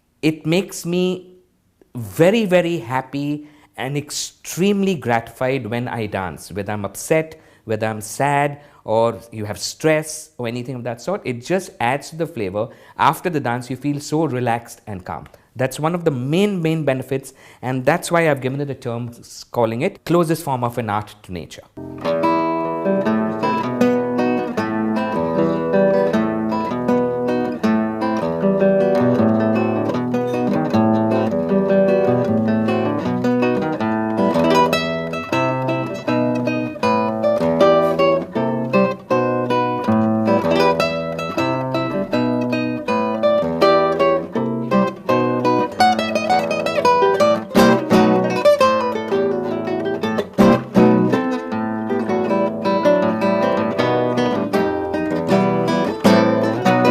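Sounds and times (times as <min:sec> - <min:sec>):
acoustic guitar music: 0:00.0 - 0:07.2, 0:21.8 - 0:56.9.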